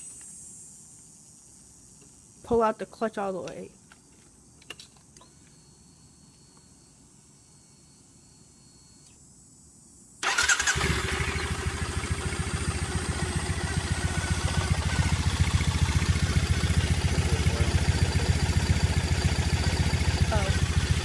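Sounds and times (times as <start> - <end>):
motorcycle engine starting and idling: 10.2 - 21.0.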